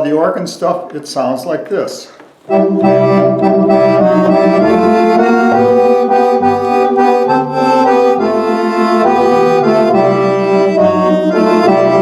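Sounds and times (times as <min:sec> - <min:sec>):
accordion chords: 0:02.4 - 0:12.0
bass line: 0:02.5 - 0:12.0.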